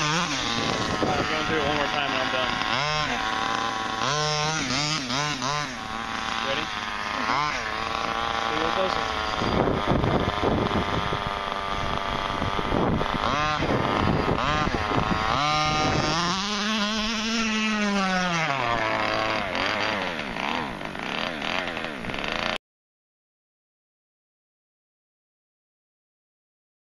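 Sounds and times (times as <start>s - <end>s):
model car engine revving: 0.0s - 22.6s.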